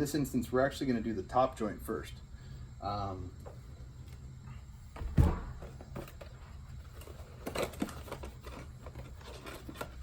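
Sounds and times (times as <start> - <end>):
heavy thump: 4.9 - 5.8
packaging rustling: 5.8 - 10.0.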